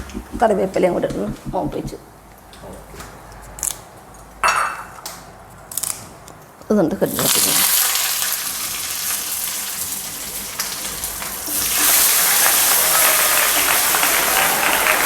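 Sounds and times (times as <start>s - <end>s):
leaves and seeds frying in oil: 7.1s - 12.6s.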